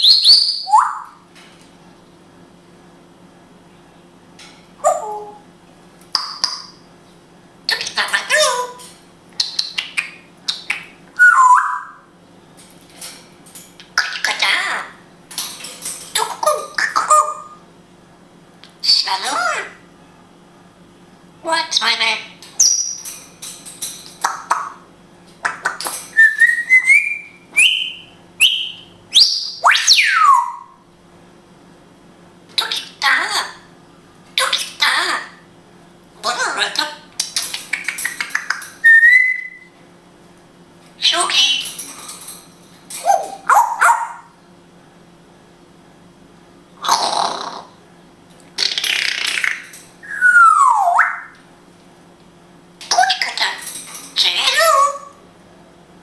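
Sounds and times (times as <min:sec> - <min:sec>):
parrot whistling: 0:00.0 - 0:01.2, 0:11.2 - 0:12.0, 0:26.1 - 0:30.7, 0:38.8 - 0:39.8, 0:50.0 - 0:51.3
parrot clicks: 0:37.2 - 0:38.8.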